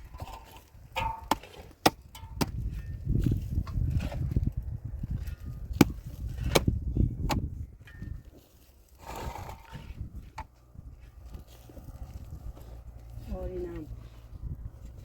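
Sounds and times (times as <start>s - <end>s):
low rumble: 9.6s - 15.0s.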